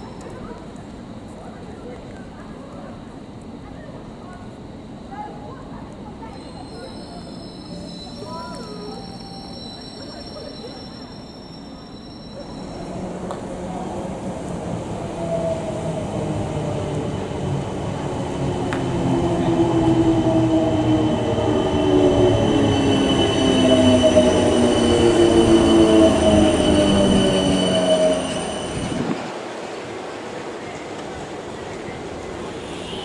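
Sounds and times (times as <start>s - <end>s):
electric train passing: 0.0s - 33.0s
train whining tones: 6.3s - 29.3s.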